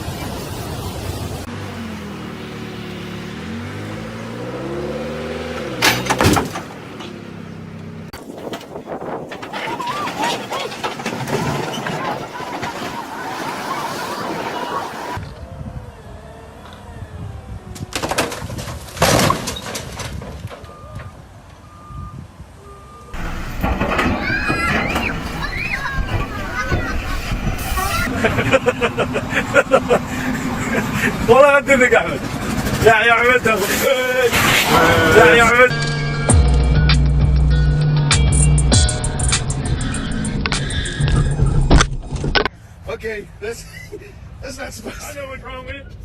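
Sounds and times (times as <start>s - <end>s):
car engine revving: 1.4s - 8.2s, 26.6s - 41.8s
vehicle crash impacts: 5.6s - 7.1s, 8.2s - 15.3s, 17.8s - 21.2s, 23.2s - 37.0s
crash impacts: 23.2s - 28.6s.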